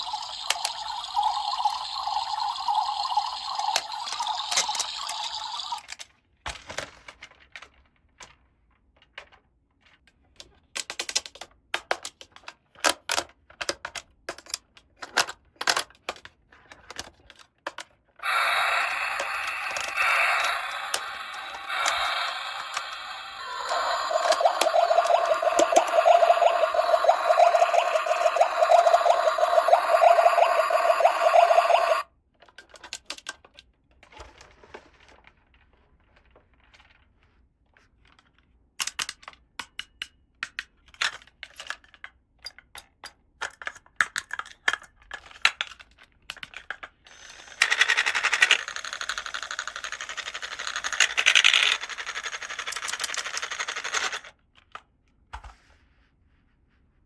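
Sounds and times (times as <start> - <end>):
plastic toy pieces clicking: 0.0 - 6.1, 10.4 - 16.3, 17.0 - 33.6, 38.8 - 54.3.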